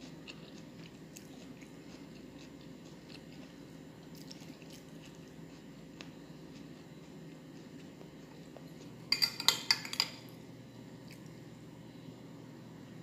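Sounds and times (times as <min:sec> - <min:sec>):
person chewing food: 0:00.0 - 0:09.8
steady low hum: 0:00.0 - 0:13.0.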